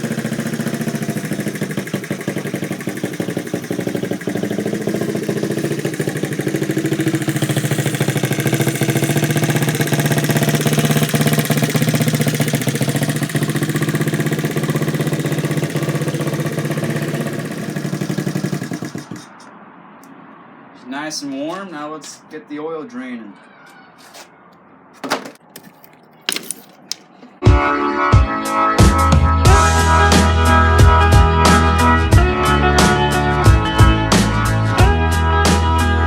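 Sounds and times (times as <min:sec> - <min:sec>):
small motorcycle engine idling: 0:00.0 - 0:19.4.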